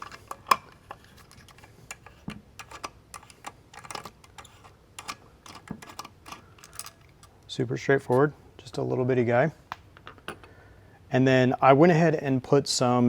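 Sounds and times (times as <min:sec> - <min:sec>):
hand tool clicking on bolt: 0:00.0 - 0:07.4.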